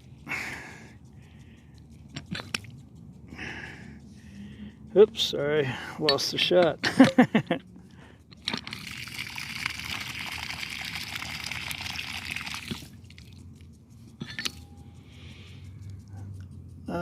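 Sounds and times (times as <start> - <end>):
sprinkler spraying water: 0.0 - 17.0
sprinkler click: 6.0 - 15.1.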